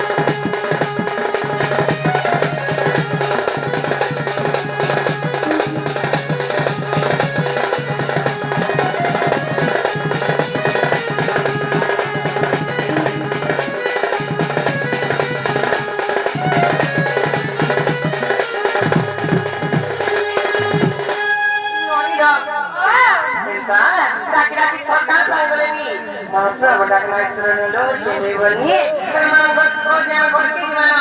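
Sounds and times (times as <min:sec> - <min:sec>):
drums playing fast beat: 0:00.0 - 0:21.3.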